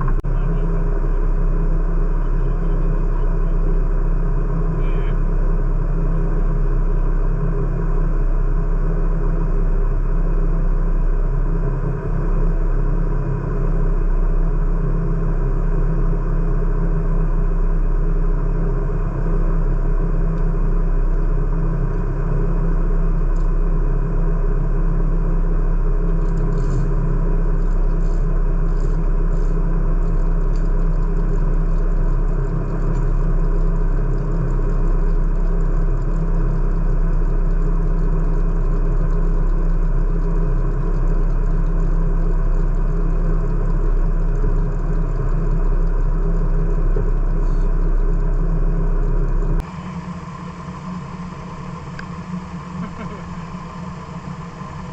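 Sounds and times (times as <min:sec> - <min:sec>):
vehicle engine rumbling: 0:00.0 - 0:54.9.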